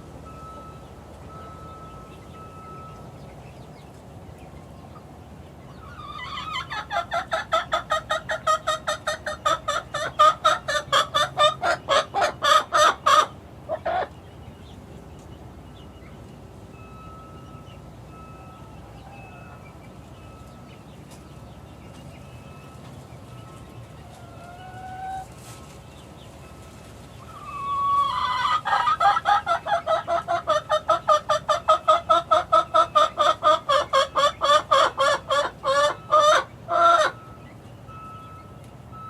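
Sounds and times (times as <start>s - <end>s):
chicken clucking: 5.7s - 14.3s, 18.9s - 37.7s.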